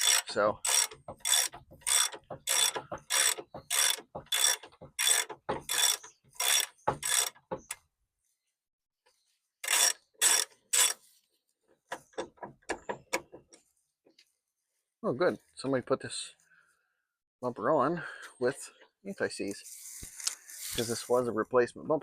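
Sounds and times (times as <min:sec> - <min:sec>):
socket ratchet clicking: 0:00.0 - 0:07.4.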